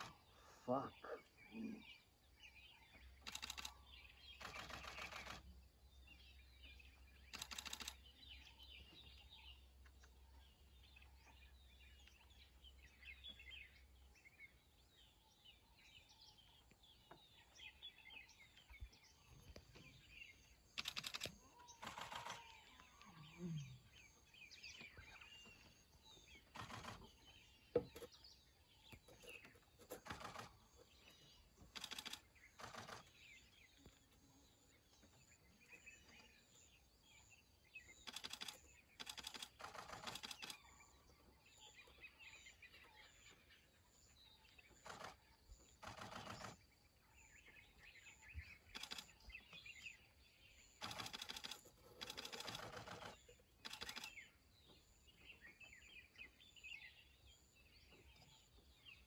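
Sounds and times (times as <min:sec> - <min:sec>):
small birds chirping: 0:00.0 - 0:59.0
camera shutters clicking rapidly: 0:03.2 - 0:03.8, 0:04.4 - 0:05.4, 0:07.3 - 0:08.0, 0:20.8 - 0:22.5, 0:26.6 - 0:27.0, 0:30.0 - 0:30.6, 0:31.8 - 0:33.1, 0:38.1 - 0:40.6, 0:45.8 - 0:46.6, 0:50.8 - 0:54.2.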